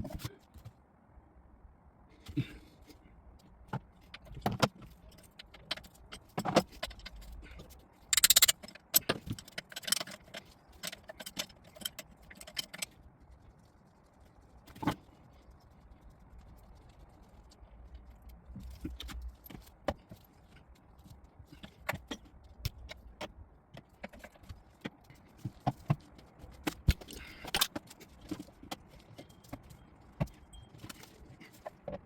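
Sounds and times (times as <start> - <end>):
metal tools clinking: 8.1 - 12.9.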